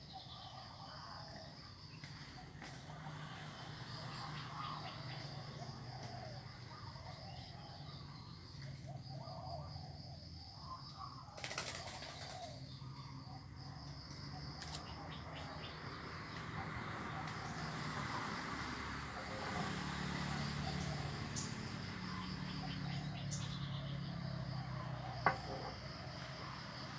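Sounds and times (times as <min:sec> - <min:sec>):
wings flapping: 0:11.4 - 0:12.4.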